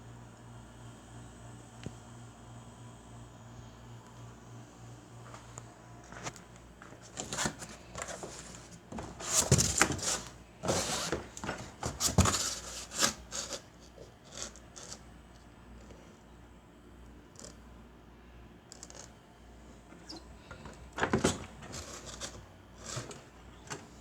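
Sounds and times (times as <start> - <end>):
objects rubbing scraping and knocking: 7.1 - 13.7.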